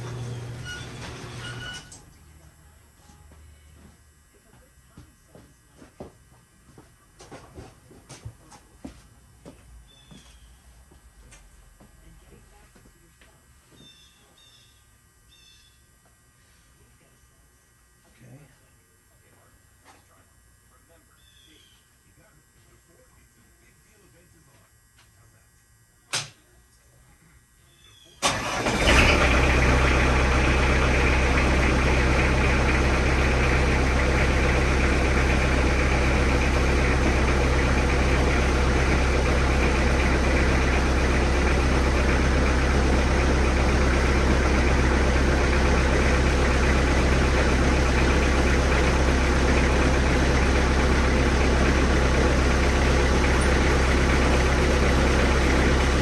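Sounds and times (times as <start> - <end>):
diesel engine starting and running: 0.0 - 2.0, 28.2 - 56.0.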